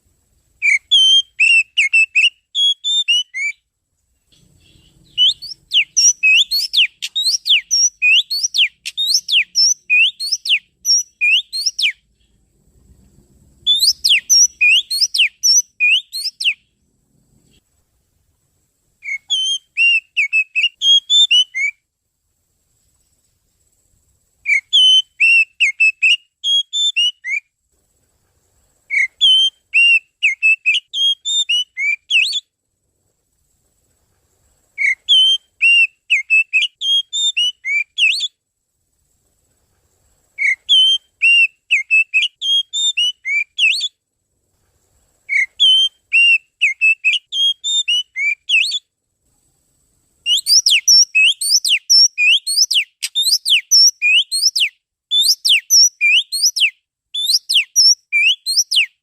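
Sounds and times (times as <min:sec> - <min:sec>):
rapid whistled bird notes: 0:00.6 - 0:03.6, 0:04.3 - 0:12.4, 0:13.6 - 0:16.8, 0:19.0 - 0:21.8, 0:24.4 - 0:27.5, 0:28.9 - 0:32.5, 0:34.8 - 0:38.4, 0:40.4 - 0:44.0, 0:45.3 - 0:48.9, 0:50.3 - 0:59.0.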